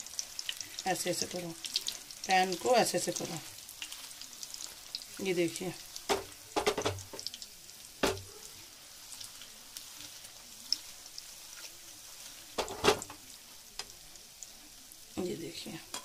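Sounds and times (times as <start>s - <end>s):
faint sizzle of deep-frying: 0.0s - 16.0s
pan clattering knocks: 6.1s - 7.2s, 8.0s - 8.3s, 12.6s - 13.2s.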